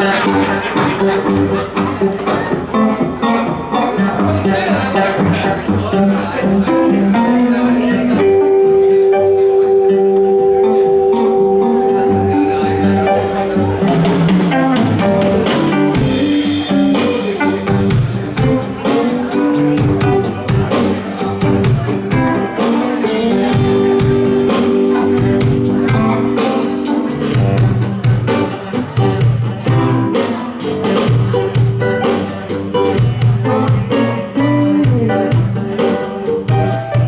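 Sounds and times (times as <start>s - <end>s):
electric guitars: 0.0s - 37.0s
bass and drums steady beat: 12.8s - 37.0s.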